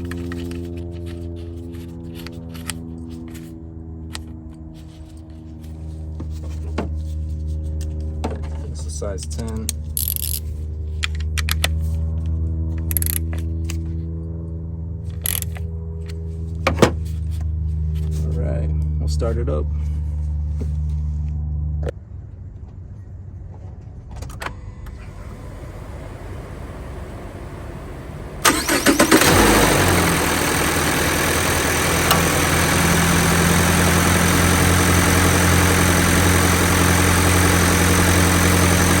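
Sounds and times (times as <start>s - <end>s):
car engine cranking and idling: 0.0s - 3.5s, 24.2s - 39.0s.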